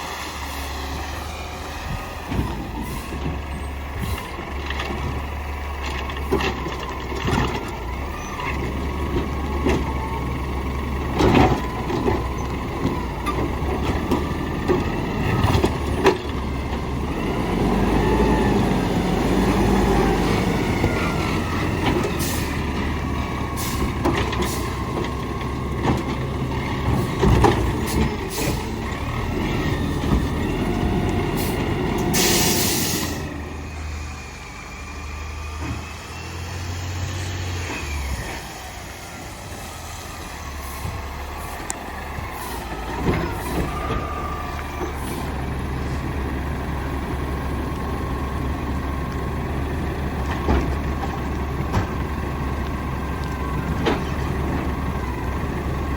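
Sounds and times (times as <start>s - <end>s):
garbage truck engine running: 0.0s - 55.9s
loud air hiss: 31.4s - 33.3s.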